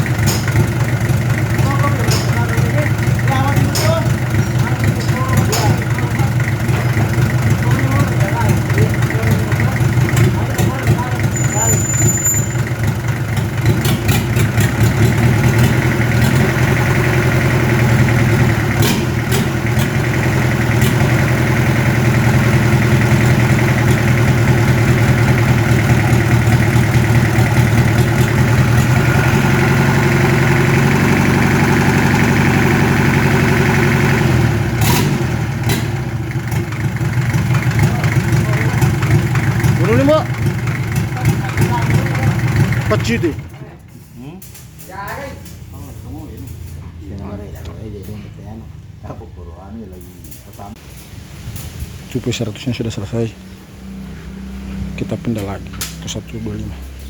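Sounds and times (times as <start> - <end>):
engine running: 0.0 - 44.8, 50.0 - 57.0
sharp clicks: 55.4 - 56.1.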